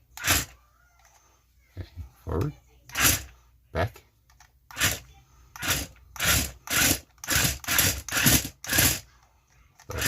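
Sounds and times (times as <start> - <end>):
toy car motors whirring: 0.1 - 1.2, 2.9 - 3.3, 4.7 - 10.0.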